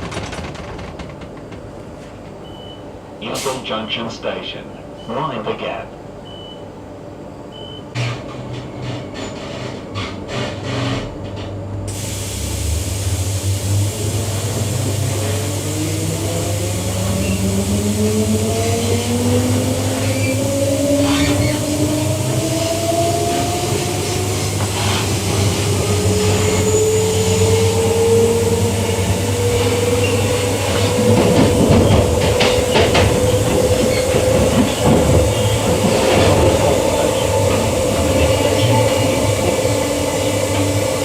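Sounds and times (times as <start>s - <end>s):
train wheels clacking on rail joints: 0.0s - 2.4s, 29.2s - 40.8s
electric train motors whining: 12.4s - 41.0s.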